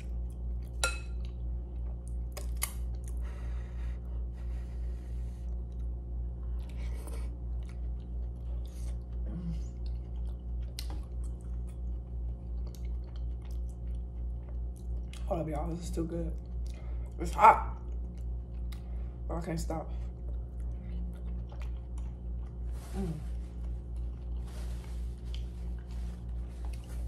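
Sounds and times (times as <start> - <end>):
wet chewing and lip smacks: 0.0 - 3.2, 5.5 - 15.3, 16.4 - 19.0, 20.1 - 22.7
steady low hum: 0.0 - 27.0.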